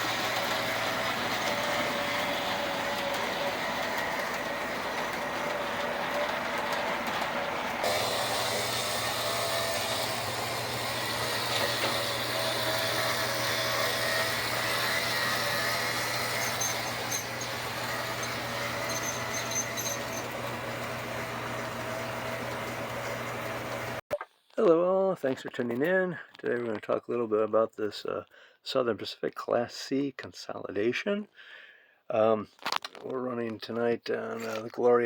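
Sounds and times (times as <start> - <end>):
electric motor whine: 0.0 - 24.0
model train wheels rolling: 0.0 - 24.0.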